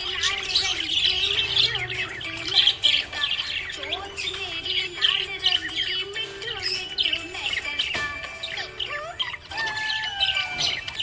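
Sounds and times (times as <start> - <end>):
budgerigars chattering and chirping: 0.0 - 11.0.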